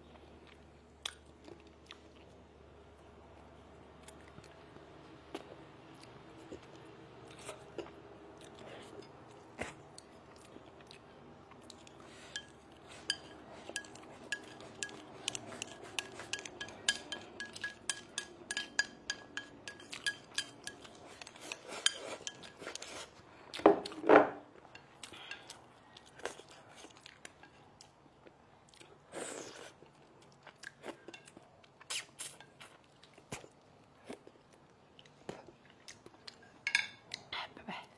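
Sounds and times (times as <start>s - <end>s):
tableware clinking on dishes: 12.3s - 22.9s, 36.6s - 37.1s.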